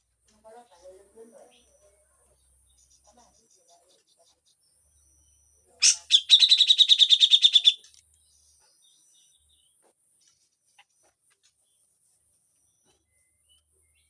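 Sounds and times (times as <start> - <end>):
bird harsh rattling call: 5.8 - 7.8.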